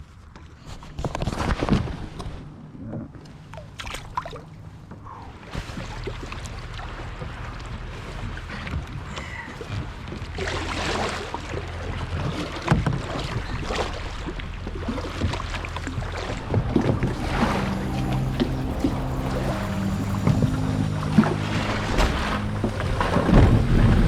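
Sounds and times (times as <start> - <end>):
wind: 0.0 - 24.0
boat motor hum: 4.4 - 24.0
water noise: 9.6 - 24.0.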